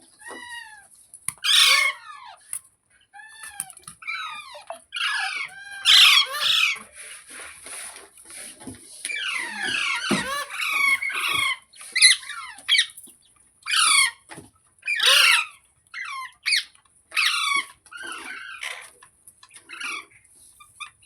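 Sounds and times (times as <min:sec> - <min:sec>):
parrot squawking: 0:01.3 - 0:02.4, 0:03.3 - 0:06.8, 0:09.2 - 0:12.8, 0:14.9 - 0:17.6.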